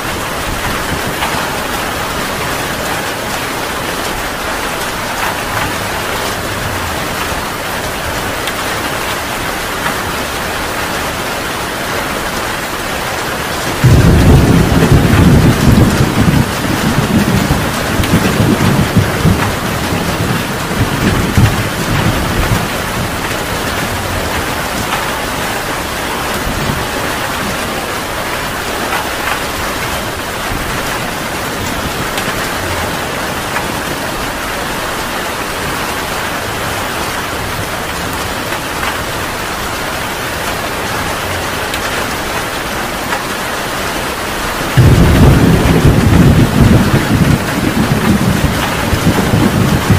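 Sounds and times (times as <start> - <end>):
heavy rain: 0.0 - 49.9
thunder rumbling: 12.3 - 43.2, 44.6 - 49.9
loud peal of thunder: 13.7 - 23.3, 44.8 - 49.9.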